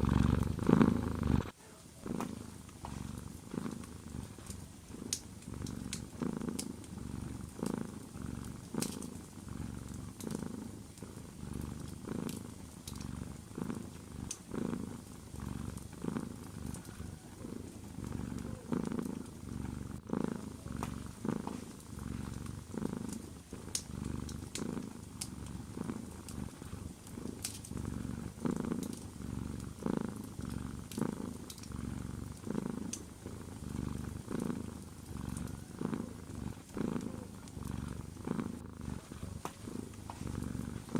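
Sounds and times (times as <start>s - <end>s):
cat purring: 0.0s - 40.9s
wood fire crackling: 2.2s - 40.9s.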